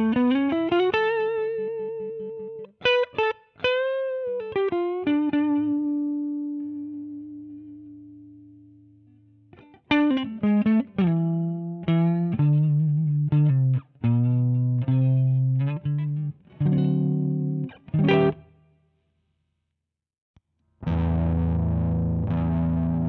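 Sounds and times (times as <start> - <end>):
fuzz electric guitar riff: 0.0 - 8.5, 9.6 - 18.5, 20.8 - 23.0.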